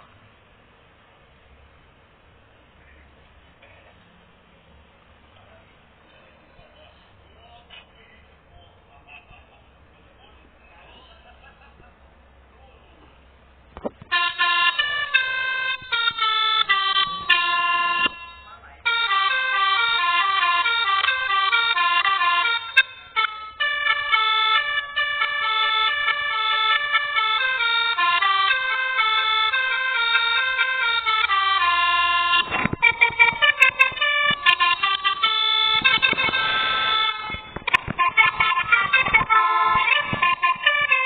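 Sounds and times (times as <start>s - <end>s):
horn playing a tune: 14.1s - 41.0s
rapid clicks and crackles: 32.4s - 41.0s.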